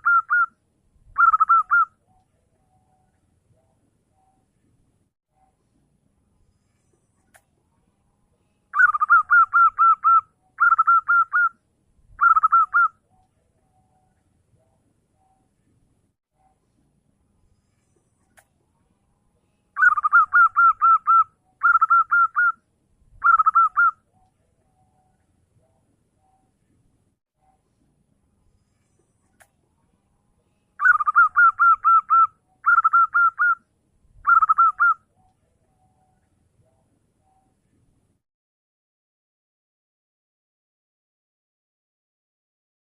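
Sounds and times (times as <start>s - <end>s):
dove cooing: 0.0s - 0.5s, 1.2s - 1.9s, 8.8s - 11.6s, 12.2s - 12.9s, 19.8s - 22.6s, 23.2s - 24.0s, 30.8s - 33.6s, 34.2s - 35.0s.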